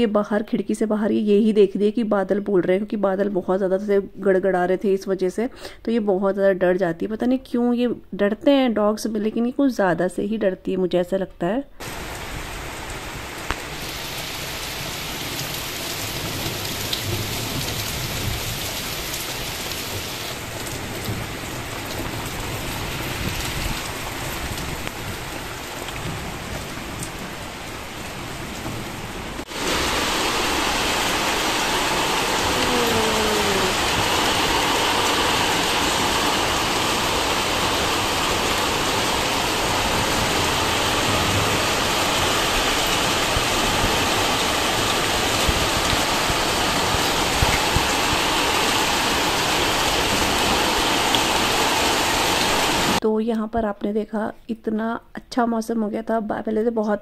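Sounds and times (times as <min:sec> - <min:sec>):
heavy rain pouring: 0:11.8 - 0:53.0.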